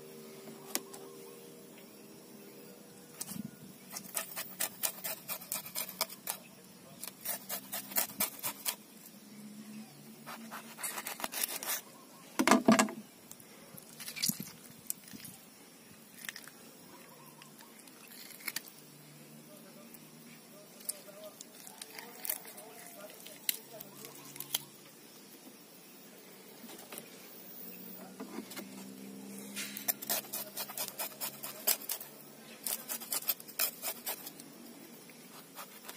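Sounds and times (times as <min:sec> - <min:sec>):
knife scraping fish scales: 0:03.2 - 0:08.8, 0:10.3 - 0:11.8, 0:29.5 - 0:34.4, 0:35.3 - 0:35.9.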